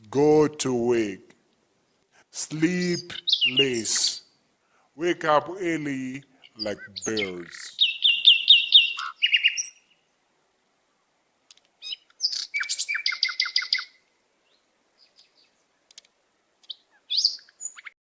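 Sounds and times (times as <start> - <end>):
songbird calls: 2.8 - 4.4, 6.2 - 10.1, 11.8 - 16.0, 16.6 - 18.0.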